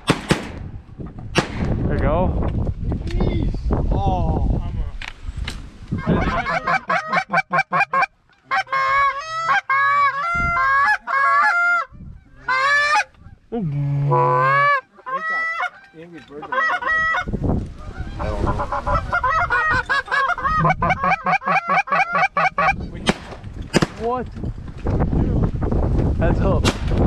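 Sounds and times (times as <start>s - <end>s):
goose honking and clucking: 6.0s - 13.2s, 13.8s - 22.9s.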